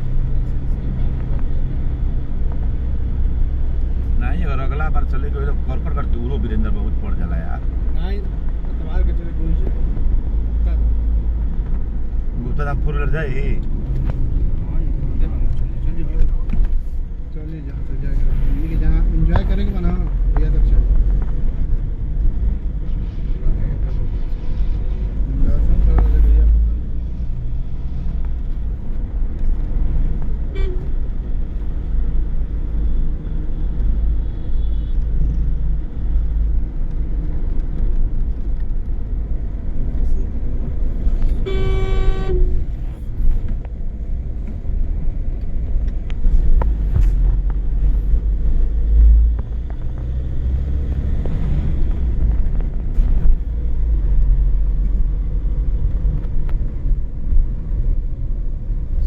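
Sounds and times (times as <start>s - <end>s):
car engine and road rumble: 0.0s - 59.0s
car horn: 30.5s - 30.9s, 41.4s - 42.6s.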